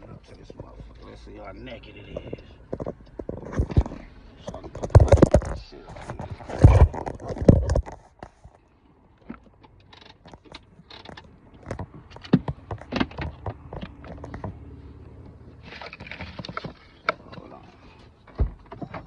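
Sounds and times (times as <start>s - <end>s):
phone handling knocks and scrapes: 2.2s - 8.6s.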